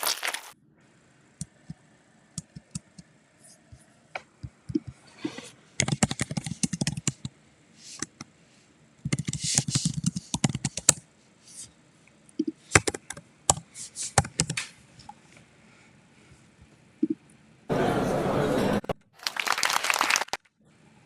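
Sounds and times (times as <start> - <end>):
computer keyboard typing: 5.8 - 7.3, 9.1 - 11.0.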